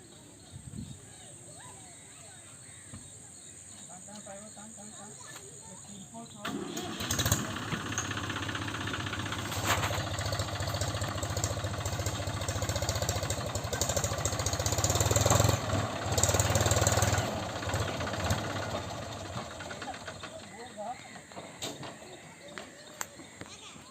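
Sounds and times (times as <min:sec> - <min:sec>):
tractor diesel engine revving: 0:06.4 - 0:20.7.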